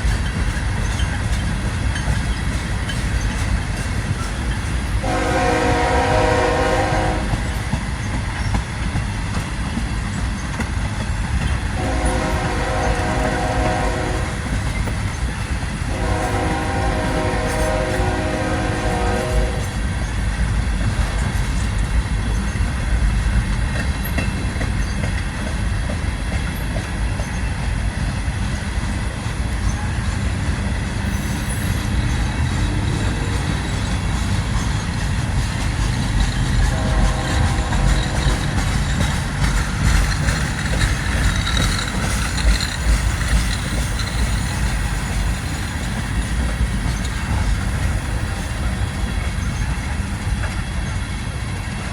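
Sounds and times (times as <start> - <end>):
freight train rumbling past: 0.0 - 51.9
locomotive horn blasts: 5.0 - 7.4, 11.8 - 14.5, 15.9 - 19.8, 36.7 - 38.6.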